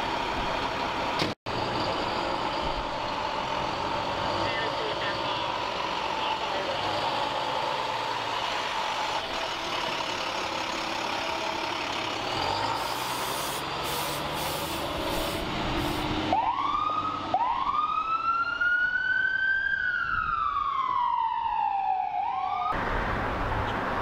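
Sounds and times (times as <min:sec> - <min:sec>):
large vehicle engine running: 0:00.0 - 0:16.2
air brakes hissing: 0:12.7 - 0:16.2.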